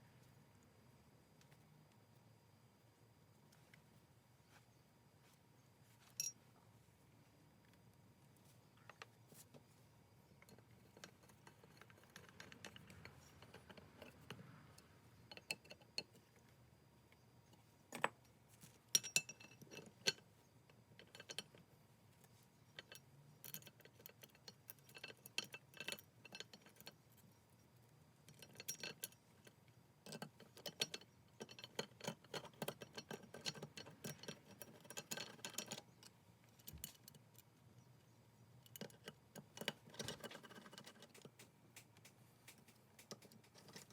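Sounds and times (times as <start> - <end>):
metallic clicks of plane parts: 10.4 - 16.4, 22.3 - 37.5, 38.6 - 43.9.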